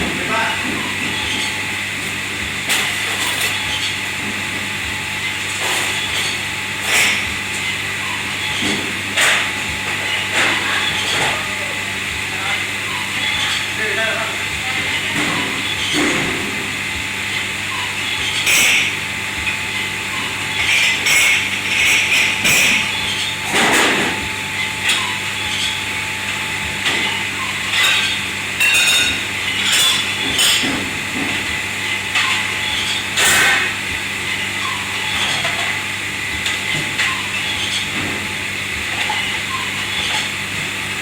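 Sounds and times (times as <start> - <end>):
kitchen machinery humming: 0.0 - 41.0
dishes and pans clattering: 26.8 - 31.5, 34.6 - 35.8.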